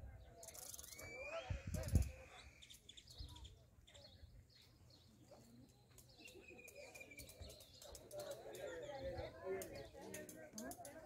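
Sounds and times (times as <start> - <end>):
bird whistled call: 0.5 - 3.5.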